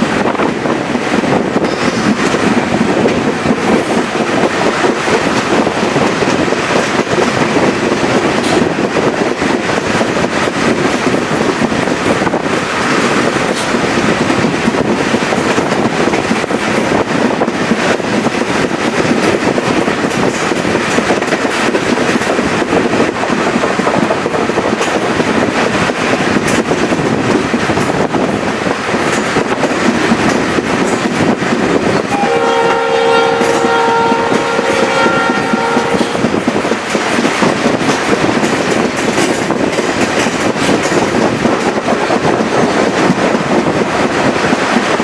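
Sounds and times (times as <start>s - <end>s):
train wheels clacking on rails: 0.0s - 45.0s
locomotive air horn blast: 32.1s - 36.3s.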